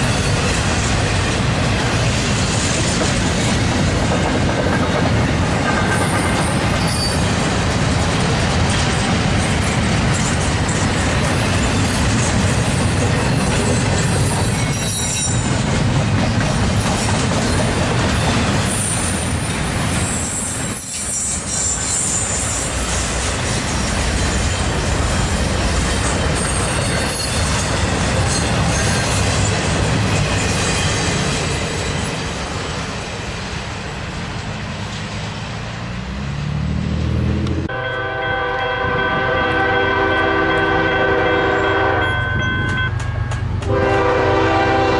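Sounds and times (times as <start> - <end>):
train wheels rumbling on rail: 0.0 - 44.9
high wheel squeals: 5.8 - 7.4, 13.3 - 15.5, 18.2 - 23.0
locomotive air horn: 37.7 - 42.7, 43.6 - 44.9.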